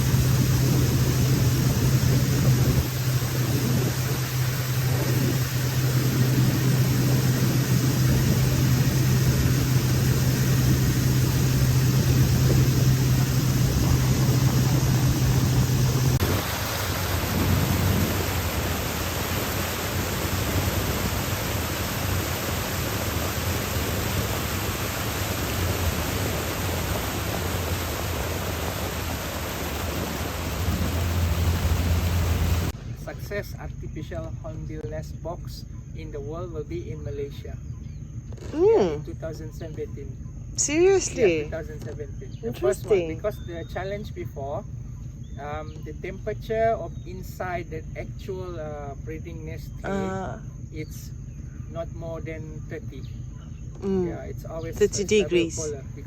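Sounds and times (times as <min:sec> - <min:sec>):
outboard motor running: 0:00.0 - 0:32.8, 0:39.7 - 0:43.5, 0:53.2 - 0:56.0.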